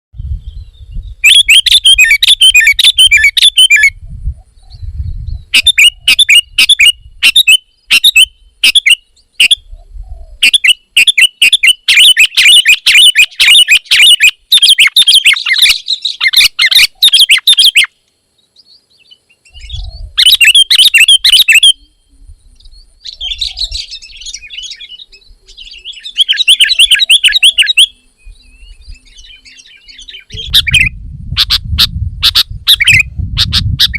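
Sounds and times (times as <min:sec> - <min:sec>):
bulbul singing chattering notes: 0:23.0 - 0:28.0.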